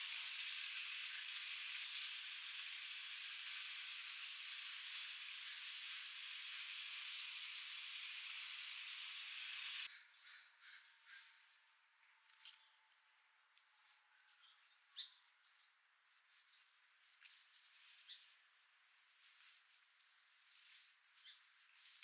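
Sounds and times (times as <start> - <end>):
steady high hiss: 0.0 - 9.9
small birds chirping: 0.0 - 19.9, 20.6 - 22.0.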